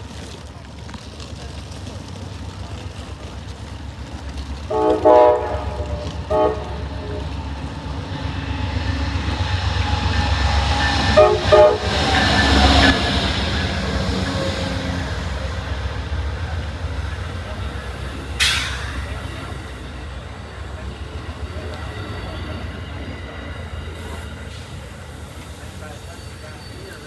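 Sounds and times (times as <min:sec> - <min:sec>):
train rumble and clatter: 0:00.0 - 0:27.0
train horn blasts: 0:04.6 - 0:15.1.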